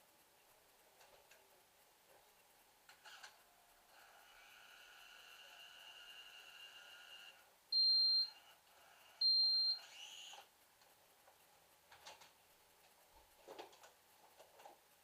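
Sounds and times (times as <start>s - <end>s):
short high electronic beeps: 7.8s - 8.4s, 9.2s - 10.0s.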